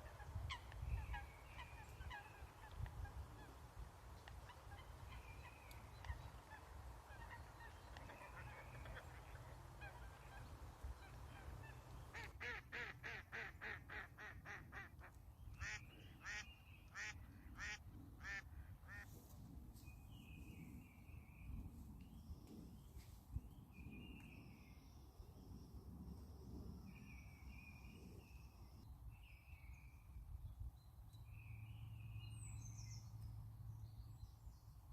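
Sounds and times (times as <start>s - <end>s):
faint goose honking: 6.1s - 14.9s.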